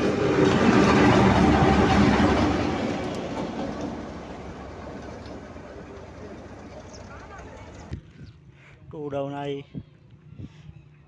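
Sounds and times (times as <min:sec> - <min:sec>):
diesel locomotive engine passing: 0:00.0 - 0:07.9.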